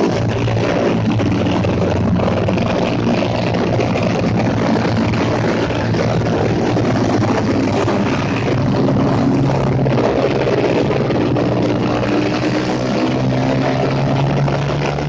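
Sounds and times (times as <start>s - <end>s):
motorcycle engines humming: 0.0s - 15.0s.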